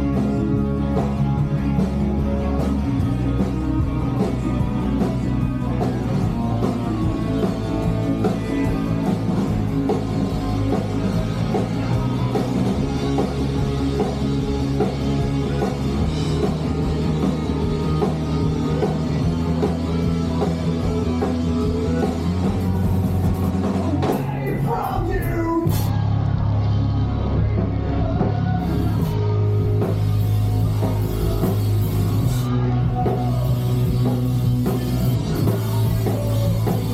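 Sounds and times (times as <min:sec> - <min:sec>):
bass guitar: 0:00.0 - 0:36.9
drum kit: 0:00.0 - 0:36.9
electric guitars: 0:00.0 - 0:36.9
person singing: 0:01.7 - 0:14.3, 0:27.0 - 0:36.9.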